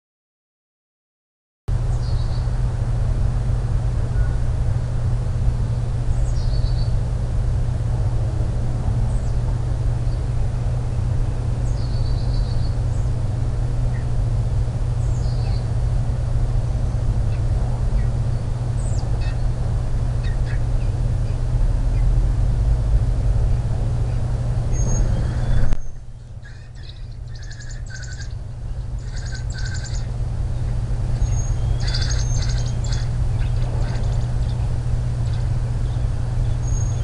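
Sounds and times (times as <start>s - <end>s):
steady low hum: 1.7s - 37.0s
high bird chirps: 24.8s - 30.1s, 31.2s - 34.6s.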